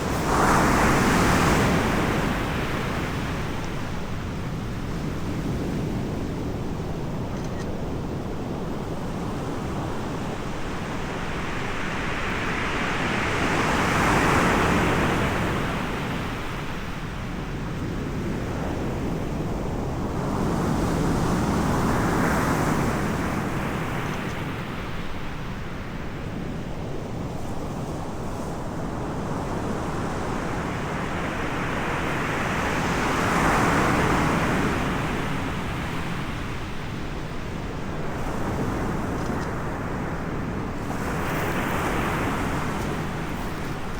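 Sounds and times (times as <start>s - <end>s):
waves breaking on shore: 0.0s - 6.8s, 18.8s - 43.9s
wind rumble on microphone: 0.0s - 43.9s.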